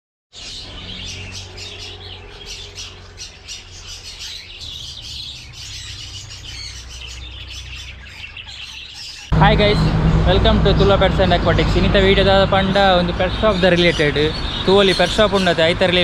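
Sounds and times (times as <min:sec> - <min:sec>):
caged birds chattering and squawking: 0:00.3 - 0:16.0
low steady hum: 0:09.3 - 0:14.3.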